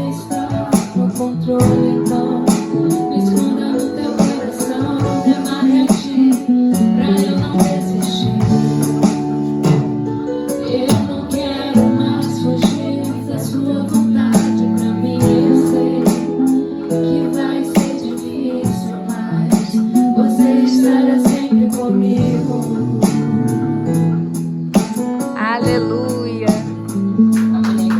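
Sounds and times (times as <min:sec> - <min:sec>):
drum kit beat: 0:00.0 - 0:27.9
guitar: 0:00.0 - 0:27.9
sustained keyboard chords: 0:00.0 - 0:27.9.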